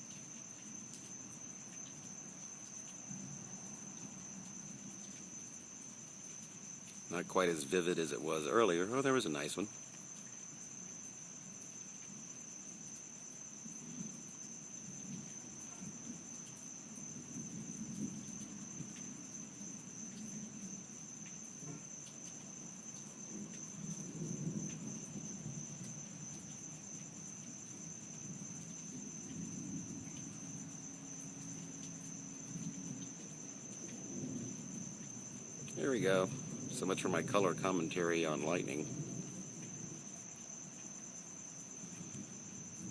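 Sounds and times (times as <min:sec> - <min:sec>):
night insects chorus: 0:00.0 - 0:42.9
distant thunder rumbling: 0:23.3 - 0:40.5.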